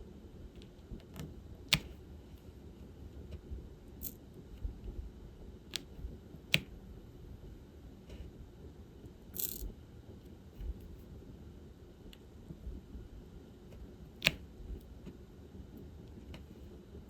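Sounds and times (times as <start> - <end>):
plastic pen clicks and taps: 1.7 - 2.0, 5.7 - 6.7, 14.2 - 14.4.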